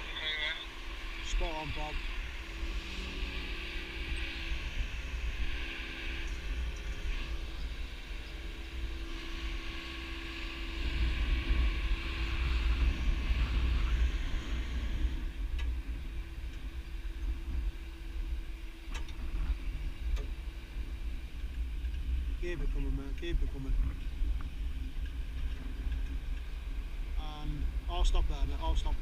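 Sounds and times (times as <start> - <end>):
heavy machine engine running: 0.0 - 29.0
wind rumbling on microphone: 0.0 - 29.0.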